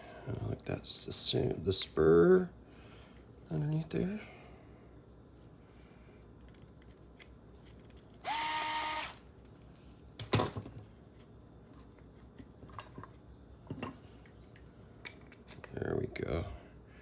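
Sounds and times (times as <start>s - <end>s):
power screwdriver whine: 8.2s - 9.2s.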